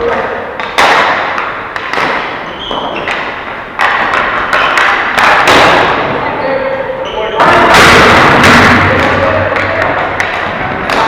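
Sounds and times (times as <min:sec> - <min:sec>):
hockey sticks hitting ball: 0:00.0 - 0:06.4, 0:07.0 - 0:11.0.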